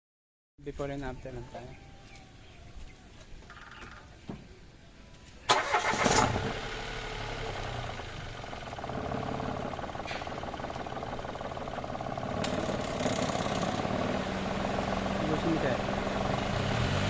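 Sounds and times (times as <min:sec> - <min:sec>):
car engine starting and idling: 0:05.5 - 0:17.0.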